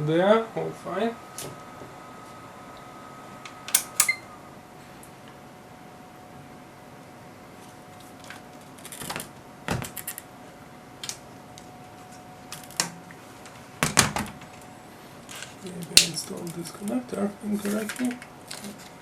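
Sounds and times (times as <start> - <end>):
hands handling parts clicking: 3.8 - 4.2.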